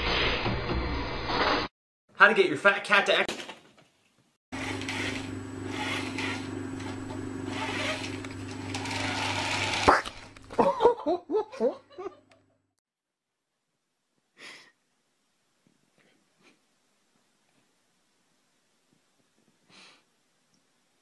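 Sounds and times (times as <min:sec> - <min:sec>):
toy car motor humming: 0:04.6 - 0:09.9.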